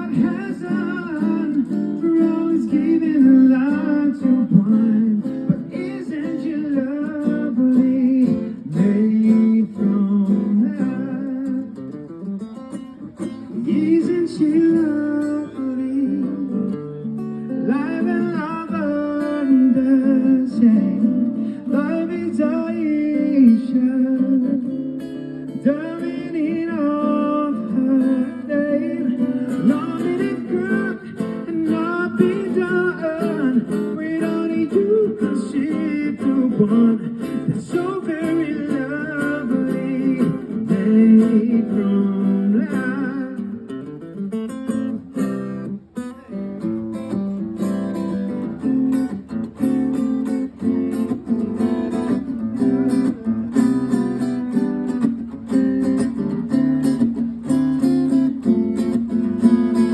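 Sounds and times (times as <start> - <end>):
person singing: 0.0 - 11.8, 25.6 - 43.6
acoustic guitar strumming: 0.0 - 59.9.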